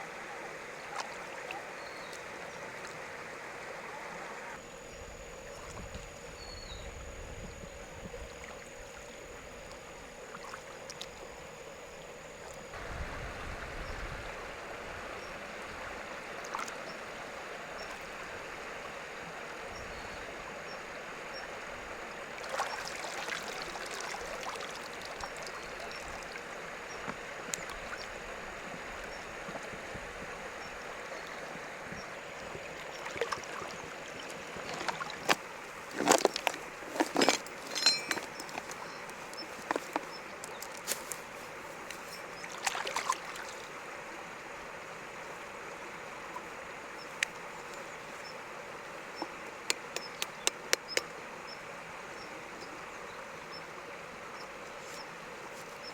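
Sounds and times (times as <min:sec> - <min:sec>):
knocks and splashes: 0:33.0 - 0:38.8, 0:42.5 - 0:43.7
river water rushing: 0:40.8 - 0:47.5.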